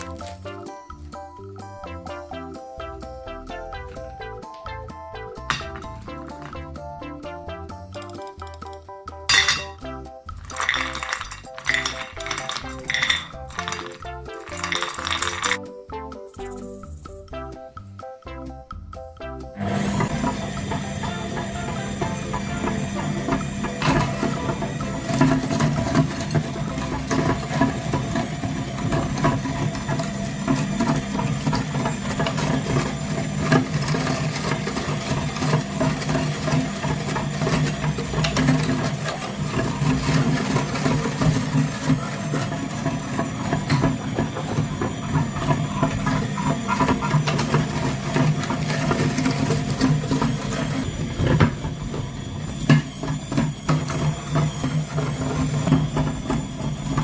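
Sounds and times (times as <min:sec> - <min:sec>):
small motor humming: 0:19.6 - 0:57.0.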